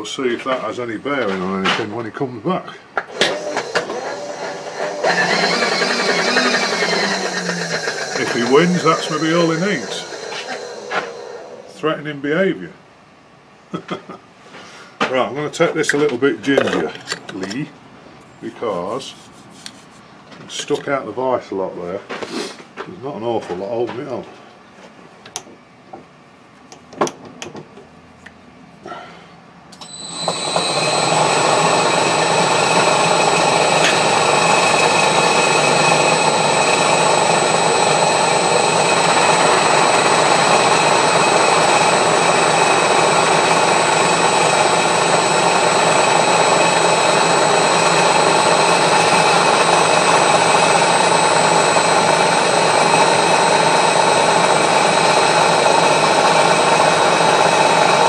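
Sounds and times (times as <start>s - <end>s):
milling machine whining: 3.0s - 11.9s, 29.8s - 58.0s.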